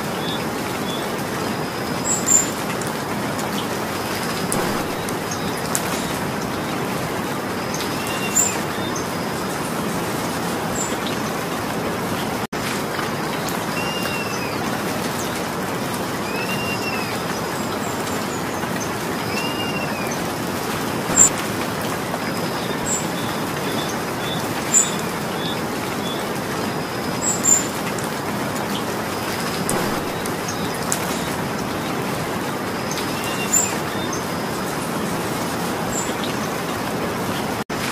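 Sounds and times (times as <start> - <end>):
steady rain falling: 0.0 - 37.9
bird calls: 3.6 - 6.9, 7.6 - 9.4, 13.7 - 15.4, 16.2 - 20.4, 21.0 - 21.4, 28.7 - 34.7.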